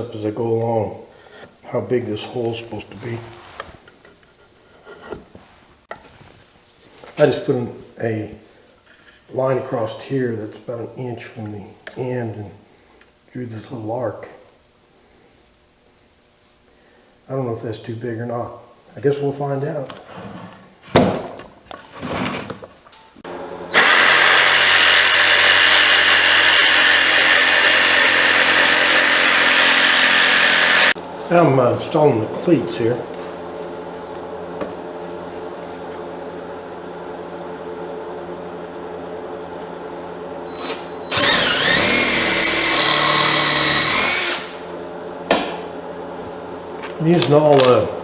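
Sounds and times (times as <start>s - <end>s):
electric drill driving screw: 23.7s - 31.0s, 40.5s - 44.6s
power tool cutting plywood: 23.7s - 31.0s, 40.5s - 44.7s.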